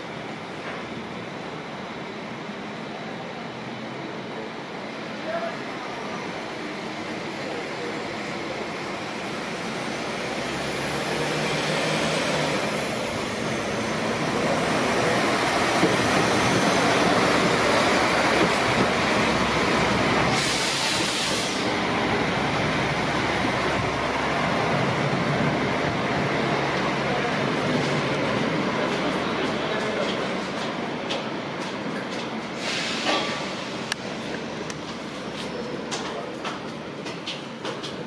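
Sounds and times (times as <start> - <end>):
train wheels on rails: 0.0 - 38.0
brief high hiss: 32.6 - 33.7.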